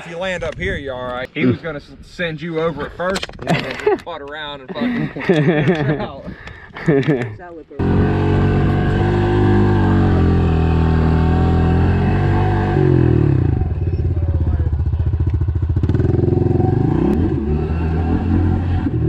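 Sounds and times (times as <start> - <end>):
pit bike engine revving: 7.8 - 19.0.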